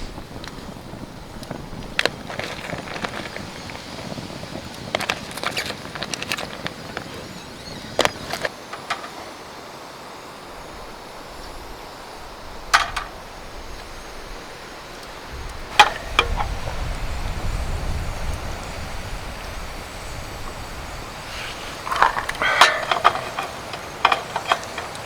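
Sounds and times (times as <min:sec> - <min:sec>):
steady hiss: 0:00.0 - 0:25.0
sharp clicks and knocks: 0:21.9 - 0:25.0.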